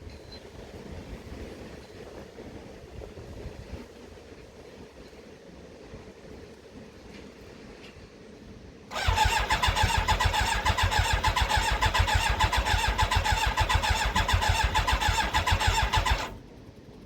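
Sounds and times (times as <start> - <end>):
motorcycle starter motor cranking: 8.9 - 16.4.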